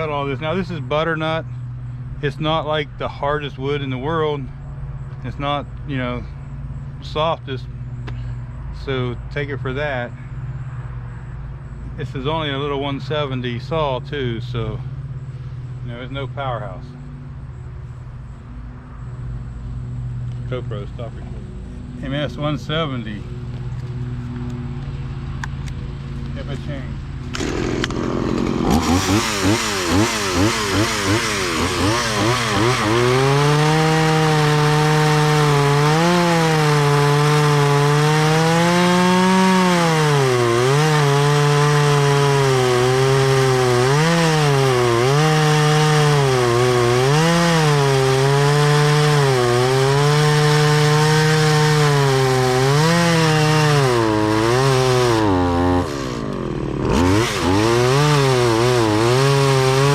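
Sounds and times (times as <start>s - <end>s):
chainsaw cutting wood: 27.2s - 59.9s.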